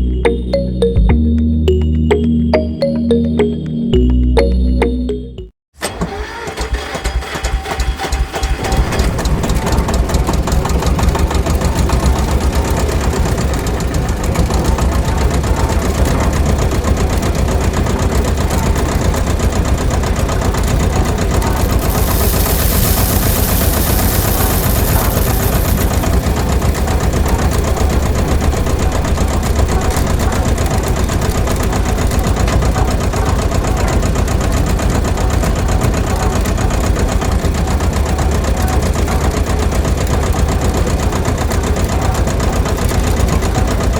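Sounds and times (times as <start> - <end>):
small motor rattling: 21.4 - 27.8
hiss: 21.6 - 26.4.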